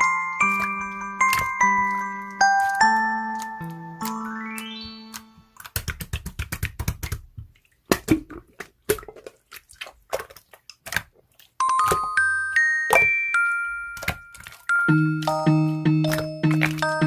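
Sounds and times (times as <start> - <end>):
chime-like music tone: 0.0 - 5.5, 11.6 - 17.0.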